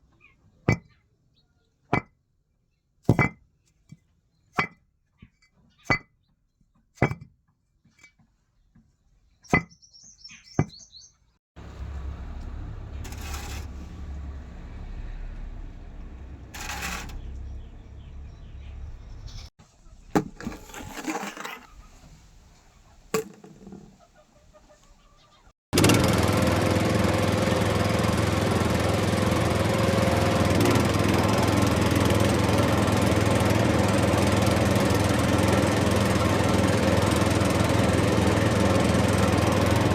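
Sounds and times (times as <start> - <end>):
small motor running: 11.6 - 18.4, 25.8 - 39.9
low rumble: 11.6 - 19.5.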